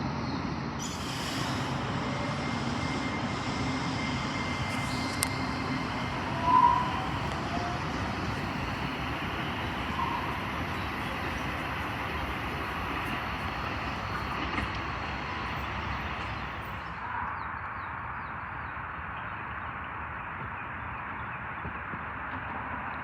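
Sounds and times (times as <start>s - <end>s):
passing train rumbling: 0.0s - 20.4s, 21.0s - 23.0s.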